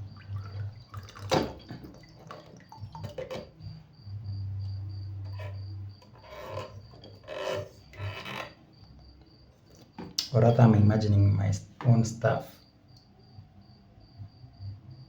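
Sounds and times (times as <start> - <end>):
plastic parts rubbing and scraping: 5.2 - 8.6.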